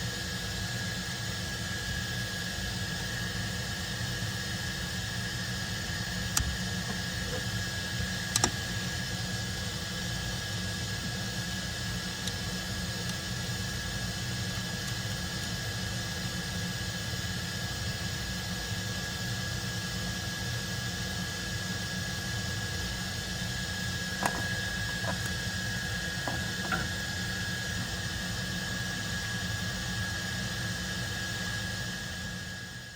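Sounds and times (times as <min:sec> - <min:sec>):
machine whine and hum: 0:00.0 - 0:32.9
sharp clicks: 0:06.3 - 0:07.4, 0:08.3 - 0:08.7.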